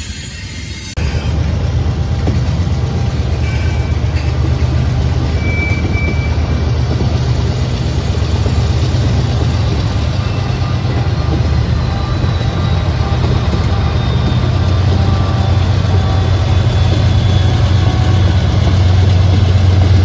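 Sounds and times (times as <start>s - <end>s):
freight train wheels rumbling: 0.0s - 20.0s
faint high squeals: 3.4s - 6.8s, 10.0s - 18.5s.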